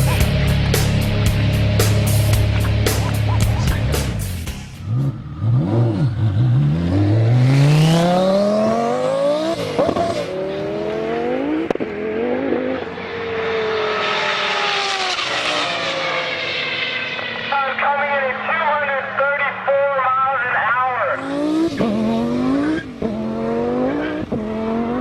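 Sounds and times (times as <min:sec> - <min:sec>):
sports car engine at full throttle: 0:00.0 - 0:25.0
wind and tyre noise: 0:04.8 - 0:19.8, 0:20.6 - 0:25.0.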